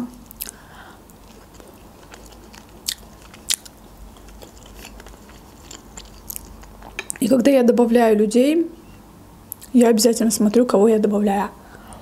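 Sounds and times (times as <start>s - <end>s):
person chewing food: 0.2s - 7.2s.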